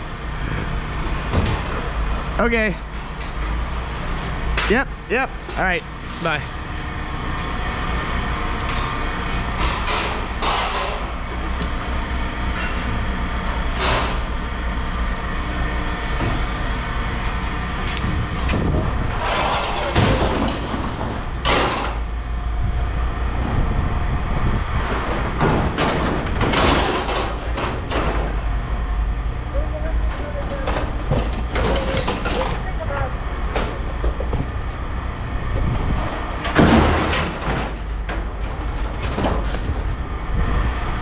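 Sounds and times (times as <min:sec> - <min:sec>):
heavy machine engine running: 0:00.0 - 0:41.0
scrap metal scraping and screeching: 0:19.1 - 0:21.1.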